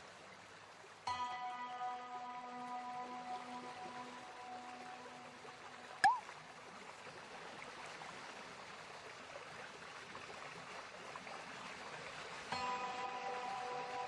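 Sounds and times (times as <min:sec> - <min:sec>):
stream water flowing: 0:00.0 - 0:14.0.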